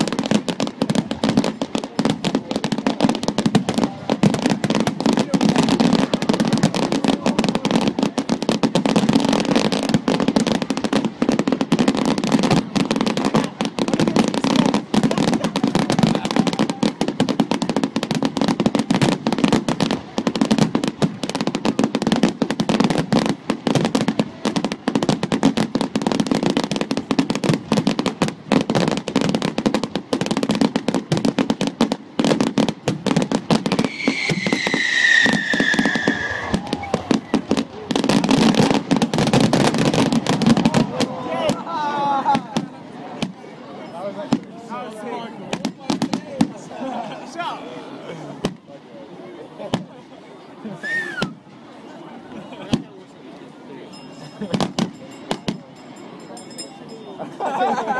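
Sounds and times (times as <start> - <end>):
fireworks crackling bangs: 0.0 - 46.7, 48.4 - 48.8, 50.8 - 56.7
whistling firework: 33.1 - 40.9, 50.8 - 51.4.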